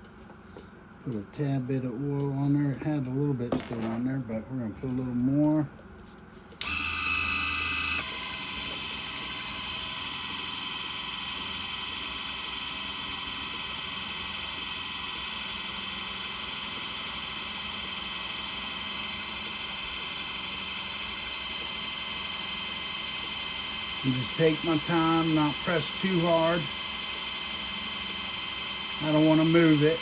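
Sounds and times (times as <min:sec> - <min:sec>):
drill bit drilling into metal: 0:06.6 - 0:30.0
drill press motor whining: 0:06.6 - 0:30.0.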